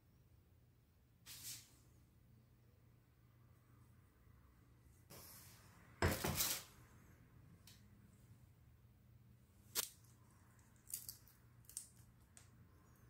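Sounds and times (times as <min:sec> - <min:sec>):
shrimp shells cracking: 0:10.8 - 0:12.1.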